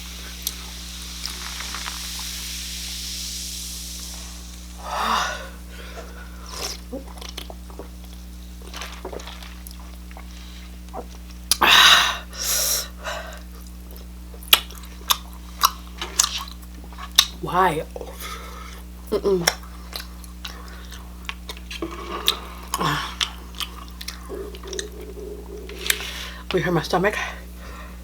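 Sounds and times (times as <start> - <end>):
low electrical hum: 0.0 - 28.0
wet chewing and lip clicks: 6.5 - 11.6, 13.4 - 17.4, 18.7 - 26.6.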